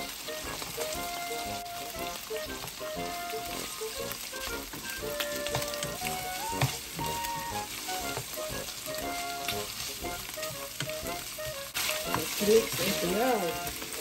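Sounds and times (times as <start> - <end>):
background music: 0.0 - 14.0
meat and onions sizzling in oil: 0.0 - 14.0
plastic spatula scraping a pan: 4.7 - 14.0.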